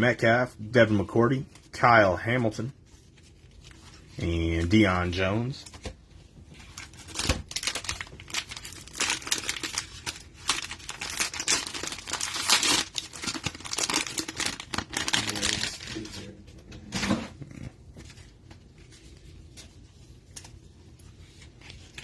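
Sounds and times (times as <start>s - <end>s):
cellophane wrapper crinkling: 6.6s - 16.3s.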